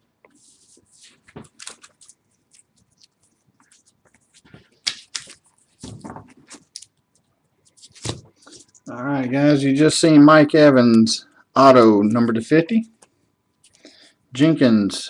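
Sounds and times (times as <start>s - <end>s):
trading cards clicking and rustling: 0.3s - 7.0s, 7.7s - 8.9s.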